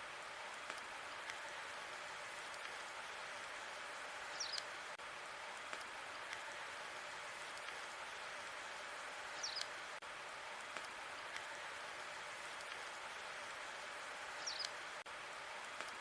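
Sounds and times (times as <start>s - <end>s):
fire crackles and pops: 0.4s - 1.5s, 2.2s - 3.0s, 5.4s - 6.6s, 9.4s - 11.7s, 12.4s - 13.0s, 14.4s - 16.0s.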